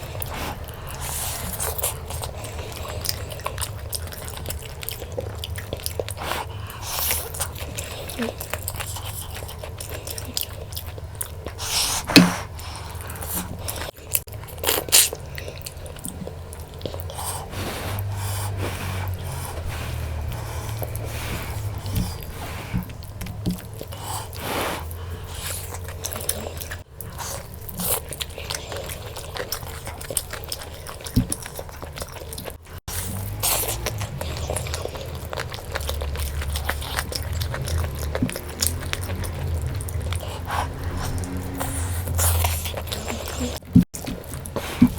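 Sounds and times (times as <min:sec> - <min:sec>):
person chewing food: 0:00.0 - 0:44.9.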